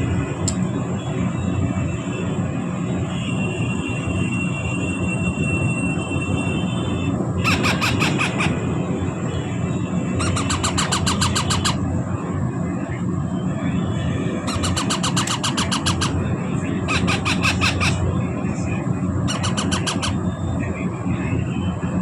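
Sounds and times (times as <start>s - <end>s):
parrot chicks squealing: 7.4s - 8.7s, 10.1s - 11.8s, 14.4s - 18.1s, 19.2s - 20.4s.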